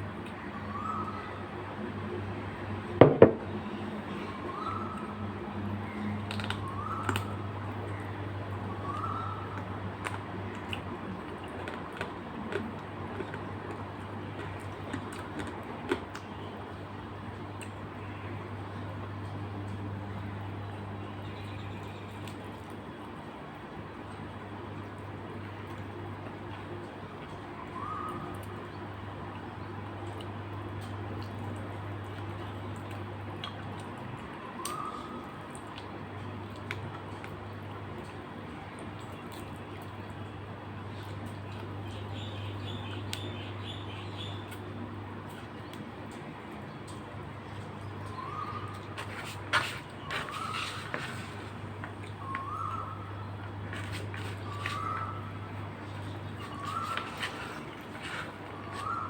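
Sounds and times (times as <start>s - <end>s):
person chewing: 10.0s - 16.2s.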